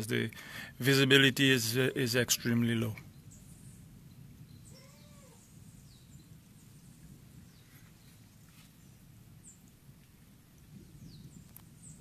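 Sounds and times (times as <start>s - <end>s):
faint high bird chirps: 3.0s - 9.7s, 10.7s - 12.0s
distant volcanic thunder rumble: 10.5s - 12.0s.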